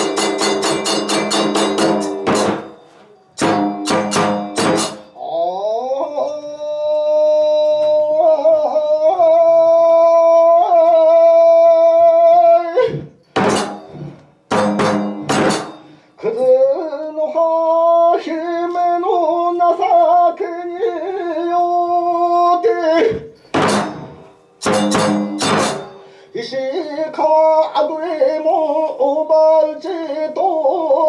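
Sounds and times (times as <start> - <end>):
sharp percussion strikes: 0.0 - 5.3, 13.2 - 16.0, 23.4 - 26.3.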